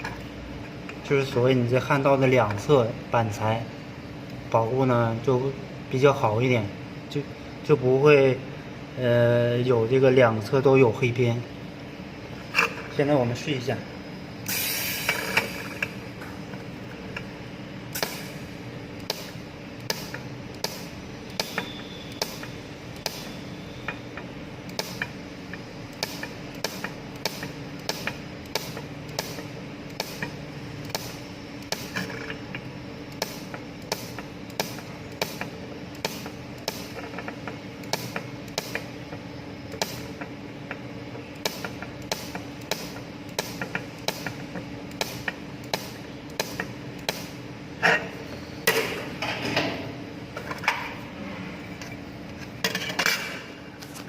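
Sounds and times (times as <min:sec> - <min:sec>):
steady low hum: 0:00.0 - 0:54.0
spot welder sharp cracks: 0:17.9 - 0:23.4, 0:24.7 - 0:25.2, 0:25.9 - 0:32.3, 0:33.1 - 0:38.9, 0:39.7 - 0:40.2, 0:41.4 - 0:47.4.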